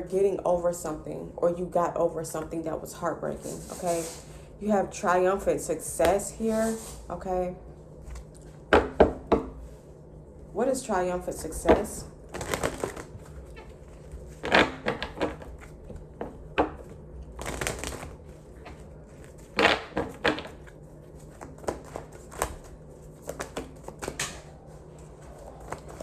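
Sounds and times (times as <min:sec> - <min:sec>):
cards rustling and slapping: 0:12.3 - 0:13.4, 0:16.8 - 0:26.0.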